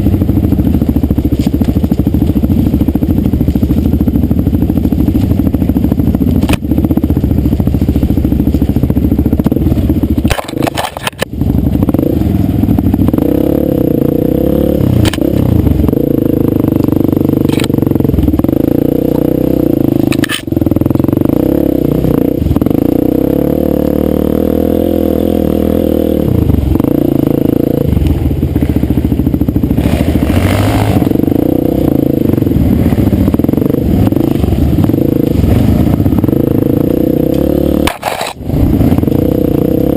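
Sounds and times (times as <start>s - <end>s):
dirt bike engine revving: 0.0s - 39.9s
bike knocks and clatter: 9.4s - 11.3s.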